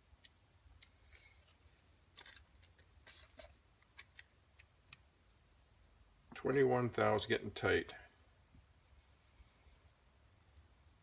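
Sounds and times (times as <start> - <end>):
faint metal clicks and scrapes: 0.2 - 4.7.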